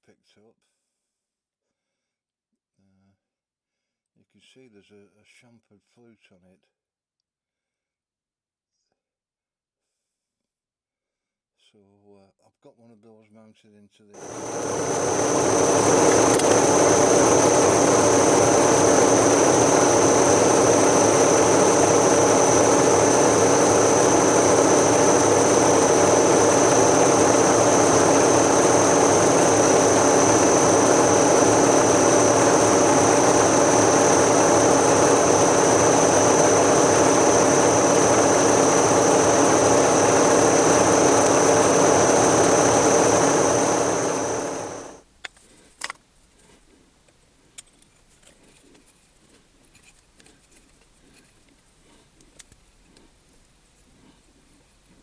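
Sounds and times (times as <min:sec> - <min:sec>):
machine tool whining and rumbling: 0:14.2 - 0:45.0.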